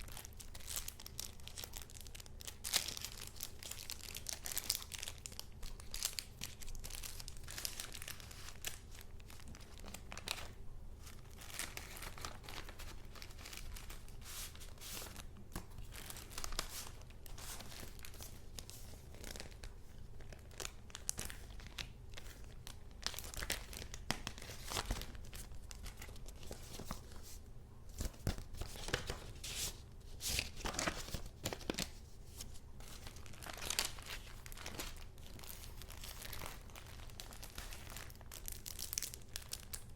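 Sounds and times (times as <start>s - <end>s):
paper rustling: 11.4s - 19.6s, 23.4s - 27.4s, 28.0s - 38.0s.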